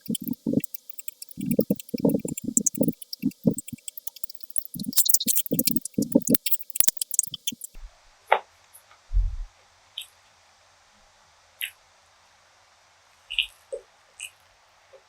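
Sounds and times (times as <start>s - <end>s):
soft mouth clicks: 0.0s - 7.8s
wet chewing: 0.0s - 7.8s
low thud: 9.1s - 9.5s.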